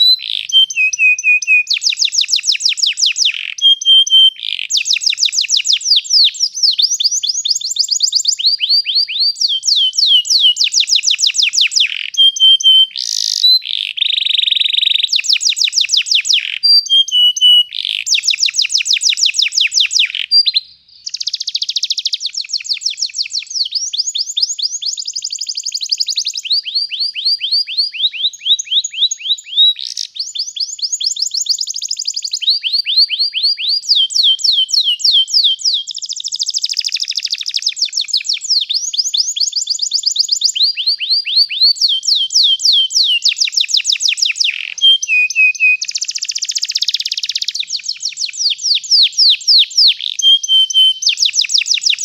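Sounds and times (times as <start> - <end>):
canary singing trills: 0.0 - 52.0.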